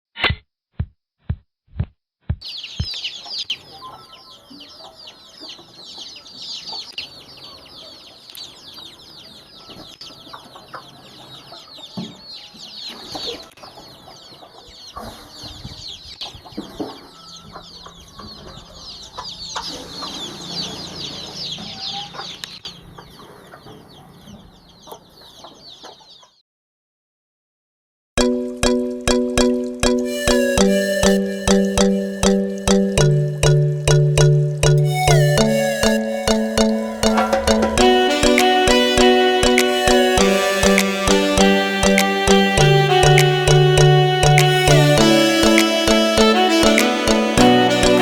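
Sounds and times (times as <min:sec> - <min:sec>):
chicks peeping: 0:02.4 - 0:26.4, 0:29.9 - 0:48.0
hen clucking: 0:30.1 - 0:48.0.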